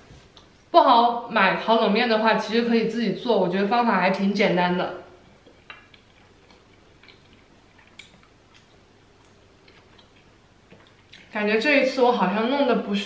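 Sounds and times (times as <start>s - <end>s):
person chewing food: 5.2s - 11.4s.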